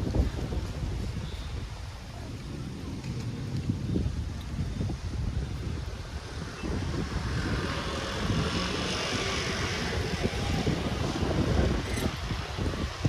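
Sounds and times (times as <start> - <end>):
wind rumble on microphone: 0.0 - 13.0
vehicle passing by: 6.1 - 13.0.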